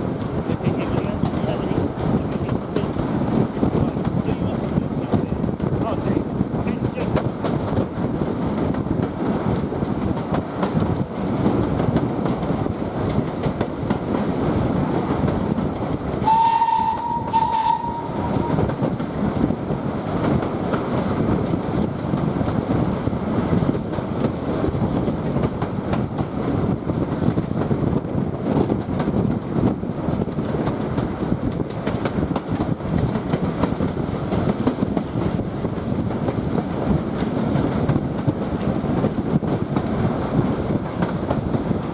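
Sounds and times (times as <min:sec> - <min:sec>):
wheels rumbling on rails: 0:00.0 - 0:41.9
steam whistle: 0:16.2 - 0:18.7.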